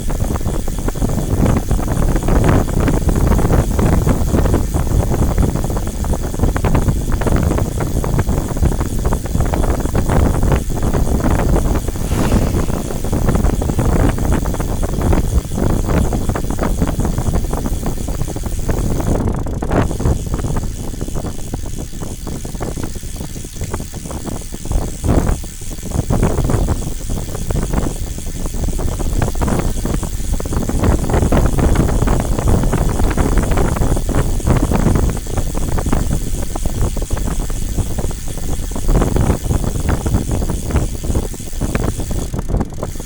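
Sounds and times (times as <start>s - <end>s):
wind buffeting microphone: 0.0s - 22.8s, 25.1s - 43.0s
vehicle low rumbling: 10.9s - 15.2s.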